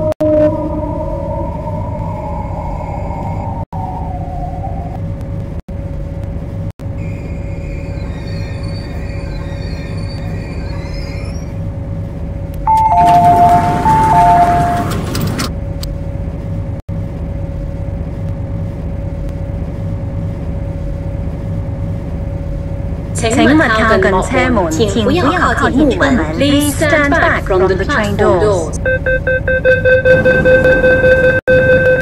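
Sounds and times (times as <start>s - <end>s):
train electrical hum: 0.0s - 32.0s
two-tone chime: 12.7s - 14.9s.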